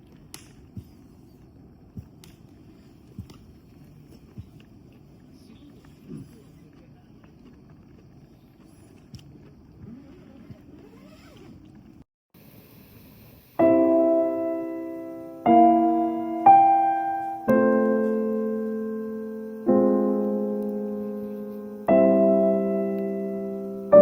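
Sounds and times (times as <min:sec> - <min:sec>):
faint background noise: 0:00.0 - 0:24.0
slow piano chords: 0:13.6 - 0:24.0.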